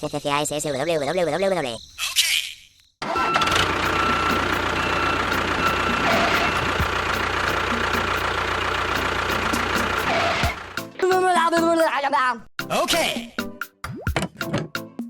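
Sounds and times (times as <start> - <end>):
small motor humming: 3.1 - 10.7.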